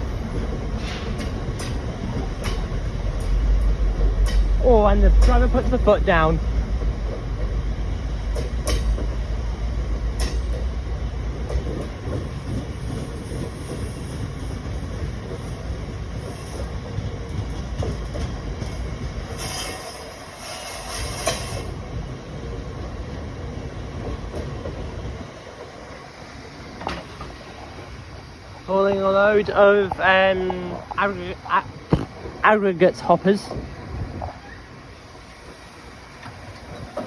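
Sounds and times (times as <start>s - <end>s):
diesel locomotive engine rumbling: 0.0s - 37.0s
wheels clicking over rail joints: 0.0s - 37.0s
high wheel squeal: 19.3s - 21.7s.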